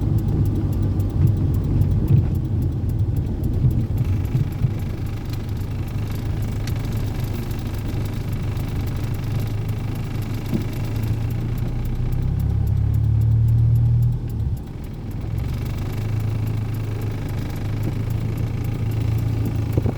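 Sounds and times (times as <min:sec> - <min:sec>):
car engine running: 0:00.0 - 0:19.9.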